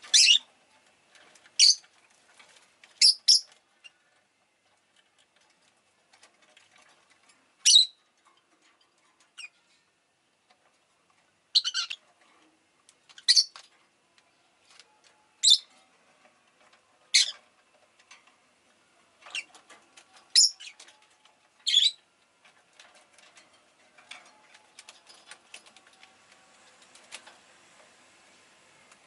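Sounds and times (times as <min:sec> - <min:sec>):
lovebird chirping: 0:00.1 - 0:00.5, 0:01.6 - 0:01.8, 0:03.0 - 0:04.0, 0:07.6 - 0:08.0, 0:11.5 - 0:12.0, 0:13.2 - 0:13.6, 0:15.4 - 0:15.7, 0:20.3 - 0:20.8, 0:21.6 - 0:22.0.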